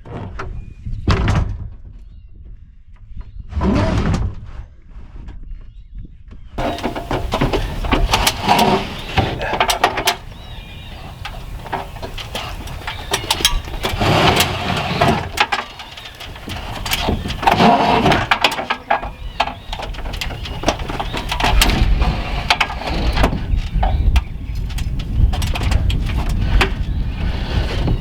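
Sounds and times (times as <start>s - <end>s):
knocks and clatter: 6.6s - 28.0s.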